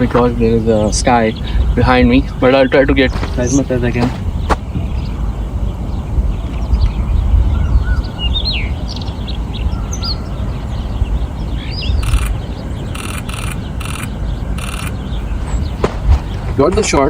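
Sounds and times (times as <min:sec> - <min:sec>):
robin singing whistled phrases: 0:00.0 - 0:17.0
steady low rumble: 0:00.0 - 0:17.0
camera shutter clicks: 0:13.0 - 0:14.9.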